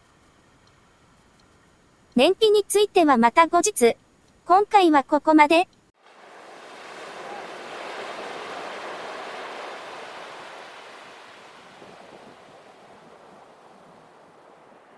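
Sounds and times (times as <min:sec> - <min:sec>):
even rushing noise: 0:06.0 - 0:14.9.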